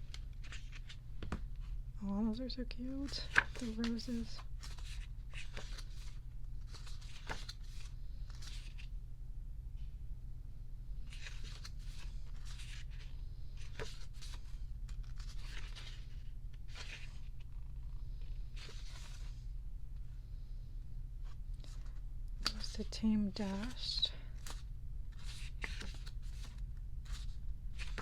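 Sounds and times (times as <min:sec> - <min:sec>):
pages being turned: 0:00.0 - 0:01.5, 0:03.0 - 0:08.9, 0:11.0 - 0:19.4, 0:21.2 - 0:22.8, 0:23.6 - 0:28.0
steady low hum: 0:00.0 - 0:28.0.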